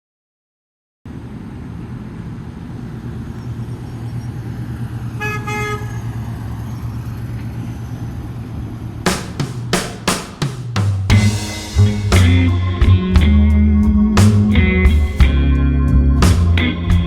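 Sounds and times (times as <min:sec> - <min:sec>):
truck engine idling: 0:01.2 - 0:17.0
truck horn beeps: 0:05.2 - 0:06.2.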